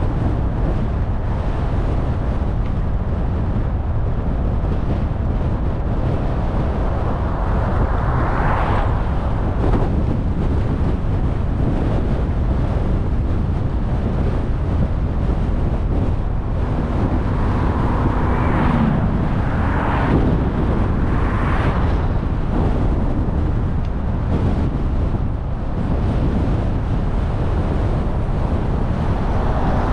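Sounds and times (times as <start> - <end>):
car road and wind noise: 0.0 - 29.9
vehicles passing: 0.0 - 29.9.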